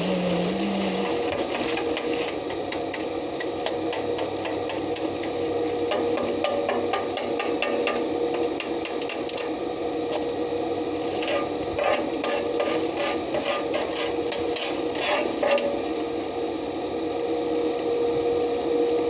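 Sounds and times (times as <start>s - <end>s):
steady tonal hum: 0.0s - 19.0s
hand tools tapping and scraping metal: 0.9s - 16.3s.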